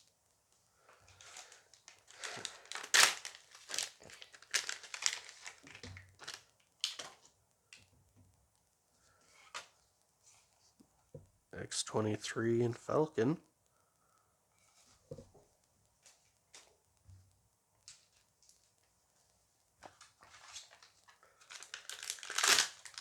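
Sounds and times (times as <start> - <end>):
foil pack crinkling and tearing: 1.1 - 7.3, 20.0 - 23.0.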